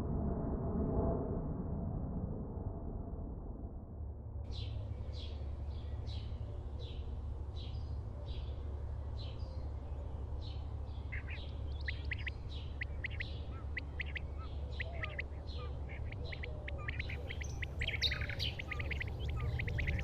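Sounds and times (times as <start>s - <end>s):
steady low hum: 3.8s - 20.0s
bird chirping: 4.5s - 20.0s.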